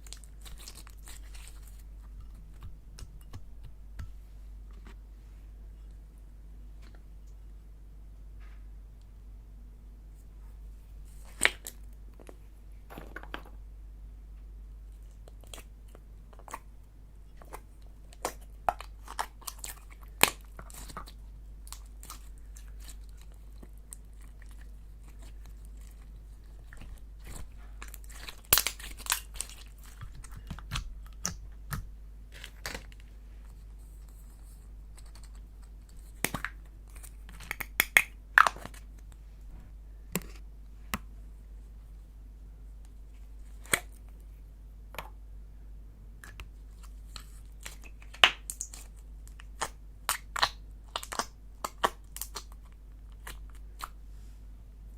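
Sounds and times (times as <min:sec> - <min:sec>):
slime popping and crackling: 0:17.4 - 0:33.0, 0:47.6 - 0:54.0.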